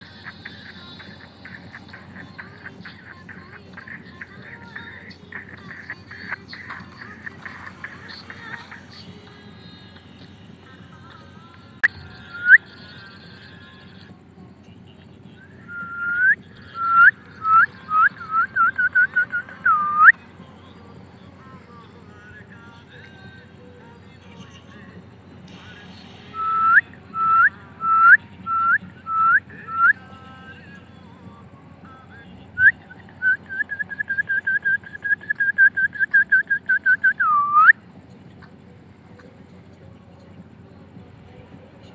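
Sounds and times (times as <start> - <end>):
whistled upward-flicking notes: 11.8 - 12.7, 15.7 - 20.2, 26.4 - 30.0, 32.6 - 37.8.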